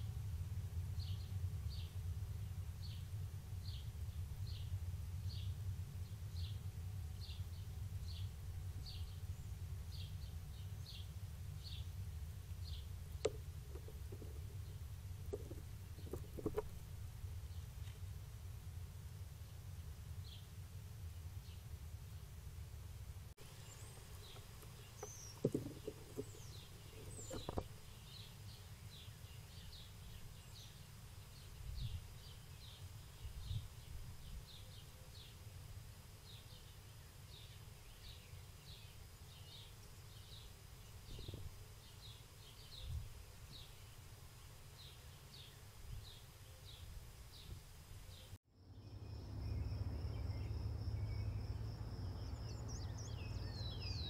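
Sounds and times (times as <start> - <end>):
low outdoor rumble: 0.0 - 54.0
bird chirping: 1.0 - 16.8, 23.4 - 35.6, 36.2 - 54.0
sharp knocks: 25.0 - 27.7.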